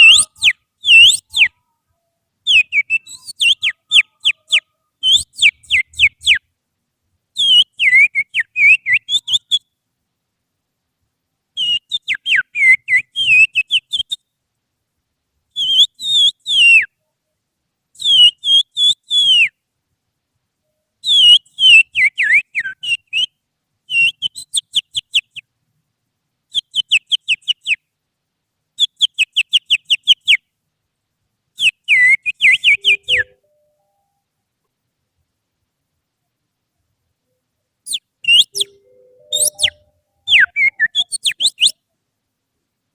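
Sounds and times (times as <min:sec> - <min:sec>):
shrill finger whistling: 0:00.0 - 0:01.6, 0:02.5 - 0:06.4, 0:07.4 - 0:09.6, 0:11.6 - 0:14.2, 0:18.0 - 0:19.6, 0:21.0 - 0:25.5, 0:31.6 - 0:34.2, 0:37.9 - 0:41.8.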